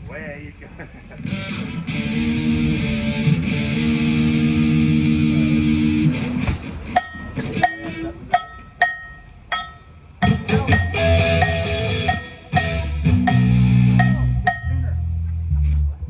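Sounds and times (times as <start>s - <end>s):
electric guitar chord: 1.3s - 6.2s, 10.2s - 15.2s
cowbell struck: 6.9s - 15.2s.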